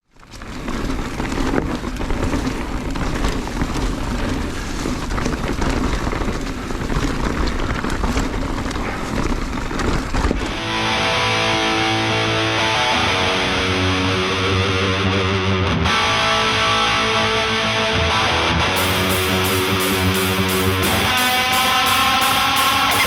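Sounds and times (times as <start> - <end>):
sharp clicks and rattles: 0.0 - 13.1, 18.6 - 23.0
bike tyres on rocky trail: 0.0 - 14.5, 18.6 - 23.0.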